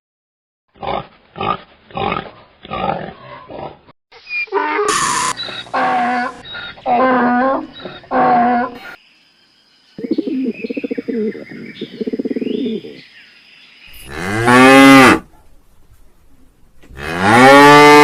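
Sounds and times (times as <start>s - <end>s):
birds chirping: 5.2s - 14.2s
cow mooing: 14.0s - 15.2s, 16.9s - 18.0s.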